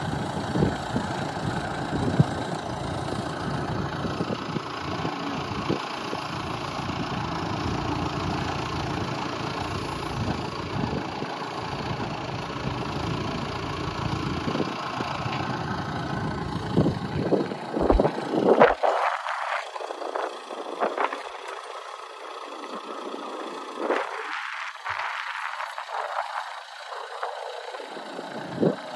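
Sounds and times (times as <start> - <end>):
wind buffeting microphone: 0.0 - 13.2, 13.9 - 21.5
vehicle engine idling: 0.0 - 28.9.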